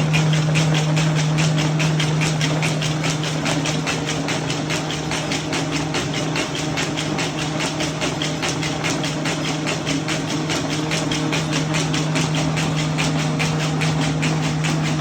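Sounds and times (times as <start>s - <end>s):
machine humming: 0.0s - 5.9s
rapid machine clicking: 0.0s - 15.0s.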